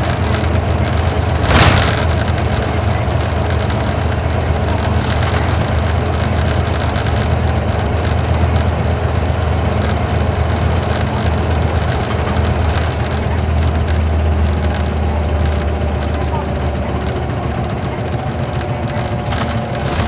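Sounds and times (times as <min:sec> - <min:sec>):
diesel bus engine drone: 0:00.0 - 0:20.0
road and tyre noise: 0:00.0 - 0:20.0.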